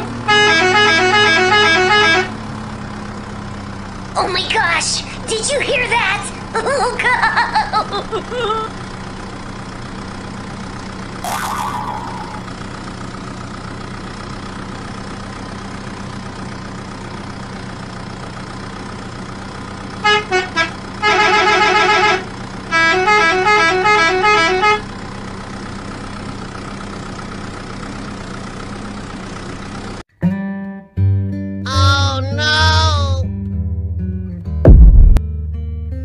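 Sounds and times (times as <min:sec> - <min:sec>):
vehicle engine drone: 0:00.0 - 0:30.0, 0:31.7 - 0:35.2
vehicle horn beeping and honking: 0:00.3 - 0:02.4, 0:20.0 - 0:24.9.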